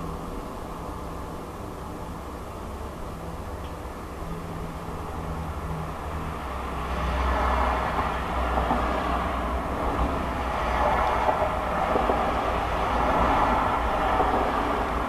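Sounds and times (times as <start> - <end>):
broad rushing noise: 4.5 - 15.0.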